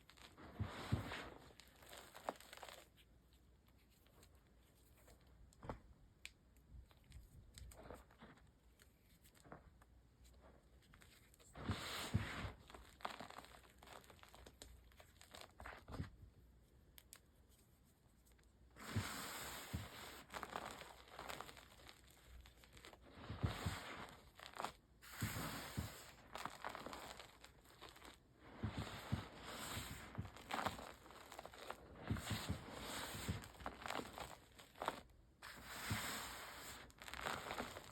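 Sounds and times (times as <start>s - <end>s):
chalk crushed by hand: 18.8s - 37.9s.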